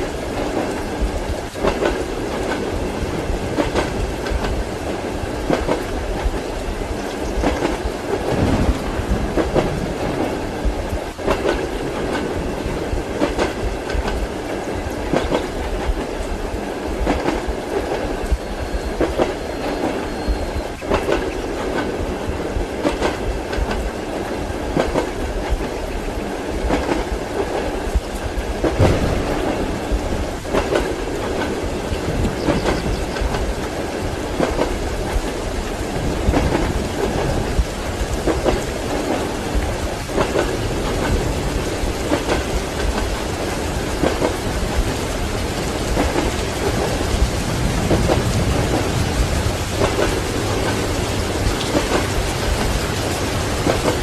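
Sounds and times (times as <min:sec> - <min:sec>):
steady rolling rumble: 0:00.0 - 0:18.4, 0:26.6 - 0:54.0
train wheels clacking over rail joints: 0:00.0 - 0:54.0.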